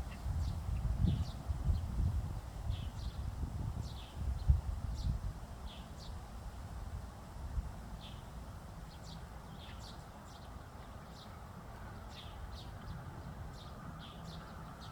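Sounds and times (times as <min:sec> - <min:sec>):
small birds chirping: 0:08.9 - 0:14.9.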